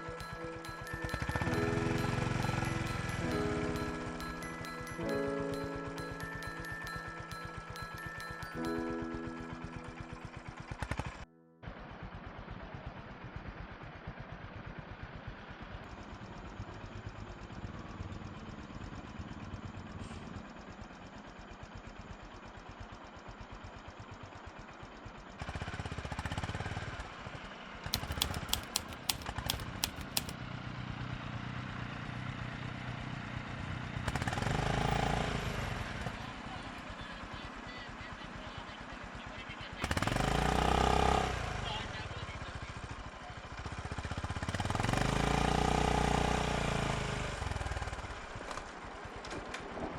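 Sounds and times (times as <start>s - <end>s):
sharp clacks: 28.0s - 30.4s.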